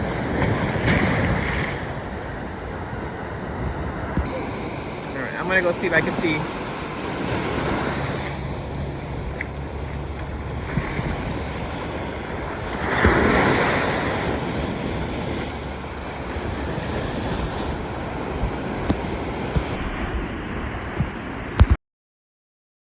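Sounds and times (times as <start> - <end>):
ocean surf washing on shore: 0.0 - 21.8
wave breaking: 0.0 - 21.8
wind buffeting microphone: 0.0 - 21.8.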